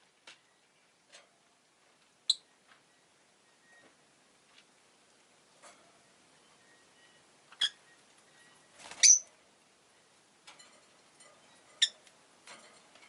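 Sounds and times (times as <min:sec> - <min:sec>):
bird chirping high: 0:06.4 - 0:09.3.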